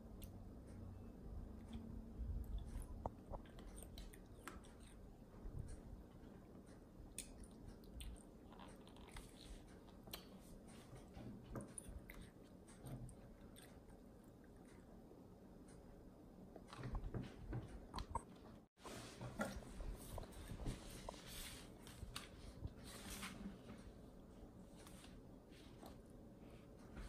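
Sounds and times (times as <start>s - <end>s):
child chewing food: 1.6s - 15.8s.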